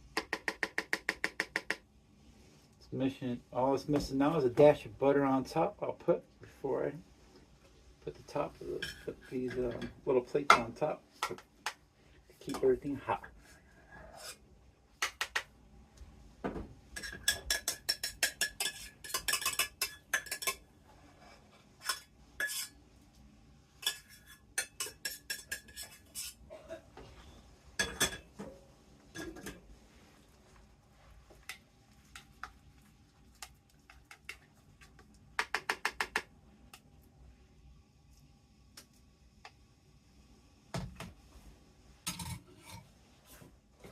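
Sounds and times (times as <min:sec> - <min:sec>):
dishes and cutlery clinking: 0:08.6 - 0:11.4, 0:17.0 - 0:20.6, 0:21.8 - 0:22.8, 0:23.8 - 0:26.8, 0:27.8 - 0:29.6, 0:42.1 - 0:42.8.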